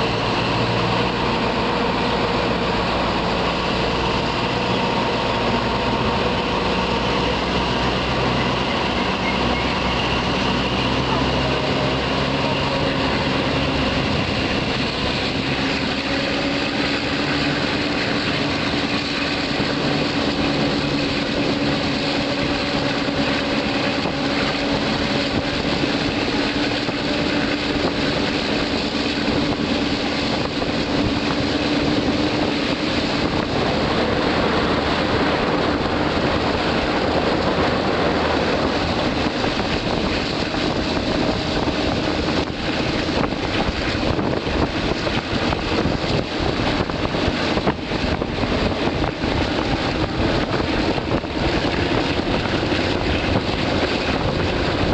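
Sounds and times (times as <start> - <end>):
train engine drone: 0.0 - 54.9
train wheels rumbling on rail: 0.0 - 54.9.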